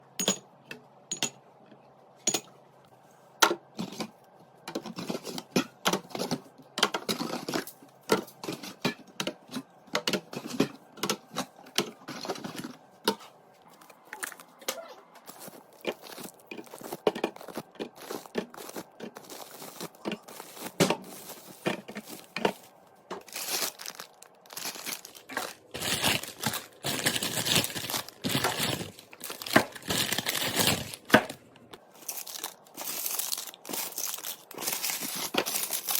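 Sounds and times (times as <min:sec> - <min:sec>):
packaging crinkling and tearing: 0:15.2 - 0:22.5, 0:23.2 - 0:35.9.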